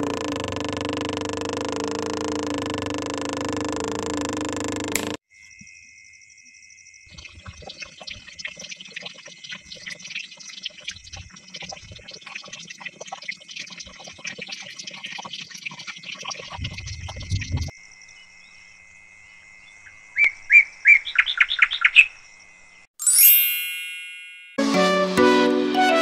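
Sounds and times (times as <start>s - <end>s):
birds chirping: 7.1s - 17.7s, 20.2s - 22.2s.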